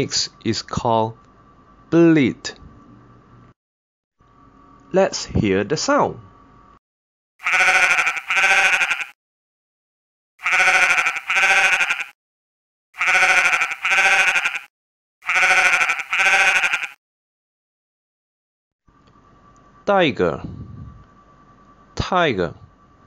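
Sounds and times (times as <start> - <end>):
sheep bleating: 7.4 - 9.2, 10.4 - 12.2, 13.0 - 17.0.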